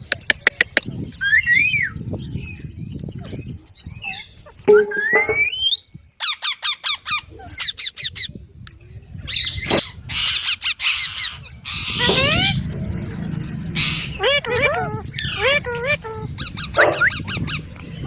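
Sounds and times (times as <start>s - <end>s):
parrot calling and squawking: 9.3s - 17.6s.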